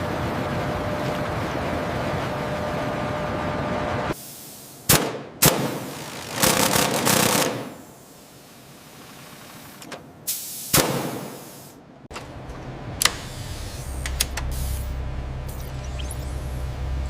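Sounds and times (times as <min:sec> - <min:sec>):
low machine hum: 0:00.0 - 0:04.2, 0:12.1 - 0:17.0
short hiss: 0:10.3 - 0:11.8
sharp clicks: 0:14.0 - 0:14.5.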